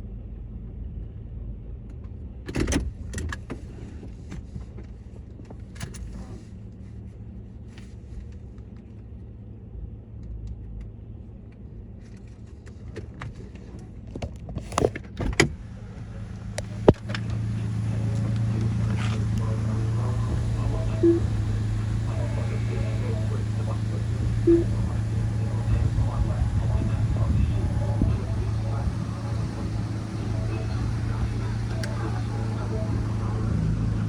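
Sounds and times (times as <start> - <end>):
car wash machinery hum: 15.6 - 34.0
louder motor hum: 16.1 - 34.0.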